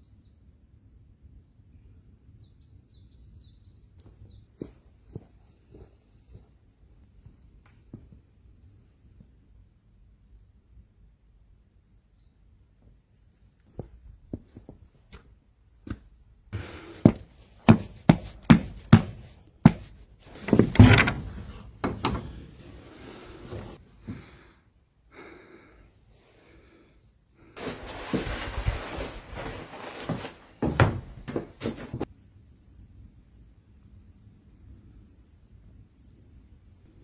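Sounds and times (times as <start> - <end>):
rustling: 16.6 - 23.8, 27.6 - 32.1
sharp knocks and thuds: 17.1 - 22.5, 30.6 - 32.1.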